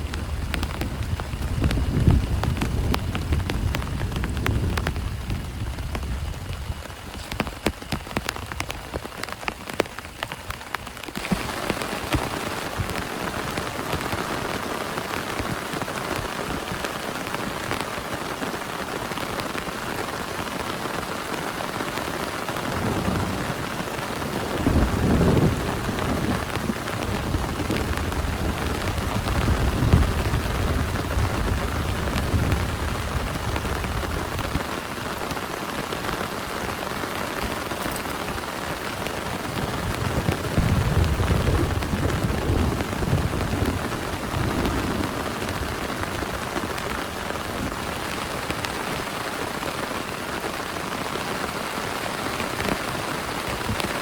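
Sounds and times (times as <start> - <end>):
thunder rumbling: 0.0 - 9.9, 21.6 - 49.7
heavy rain: 0.0 - 54.0.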